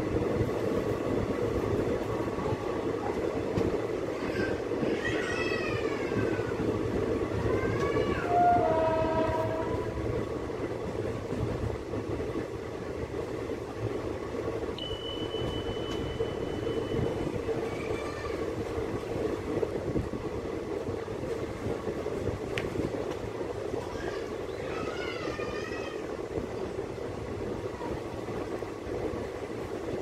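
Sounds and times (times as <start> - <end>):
train coaches rumbling on rails: 0.0 - 30.0
wind: 0.0 - 30.0
thin high steady tone: 14.8 - 18.1.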